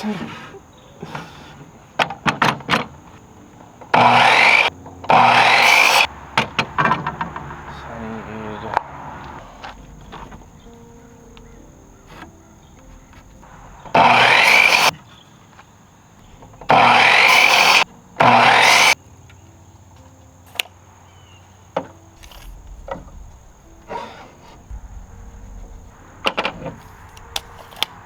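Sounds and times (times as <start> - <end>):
power tool cutting wood: 3.9 - 6.1, 12.1 - 14.9, 16.3 - 19.0
wood knocking: 9.3 - 14.9, 21.8 - 28.0.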